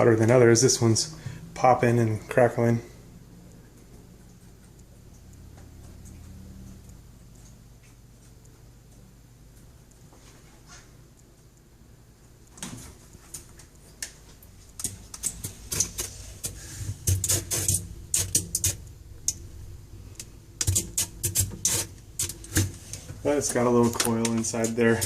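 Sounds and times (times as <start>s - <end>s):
water sputtering on heater coil: 12.4s - 25.0s.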